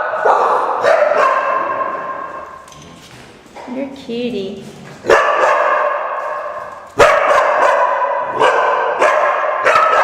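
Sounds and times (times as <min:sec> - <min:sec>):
dogs barking with echo: 0:00.0 - 0:02.6, 0:05.0 - 0:10.0.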